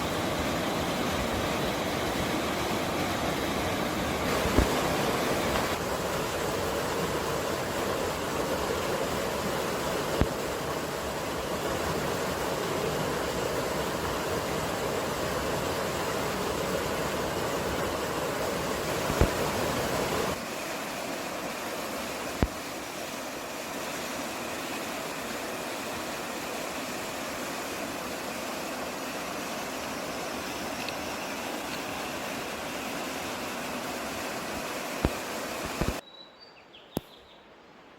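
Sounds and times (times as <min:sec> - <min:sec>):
steady rushing noise: 0:00.0 - 0:21.2.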